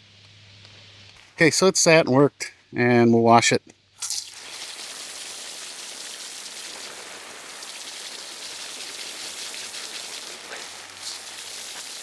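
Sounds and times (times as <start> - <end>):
water spraying onto metal: 4.0 - 12.0.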